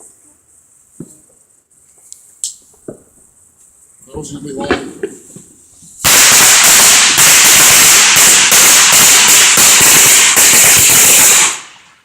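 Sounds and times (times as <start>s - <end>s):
firework crackling pops: 4.6s - 12.0s.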